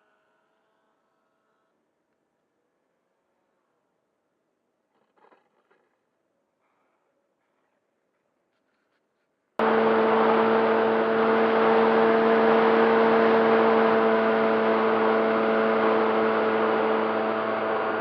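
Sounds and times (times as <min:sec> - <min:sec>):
model plane motor whining: 0:09.6 - 0:18.0.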